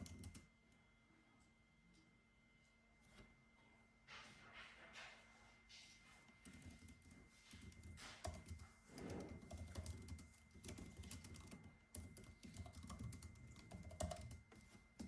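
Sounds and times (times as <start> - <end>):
typing on computer keyboard: 0.0 - 0.5, 6.4 - 15.0.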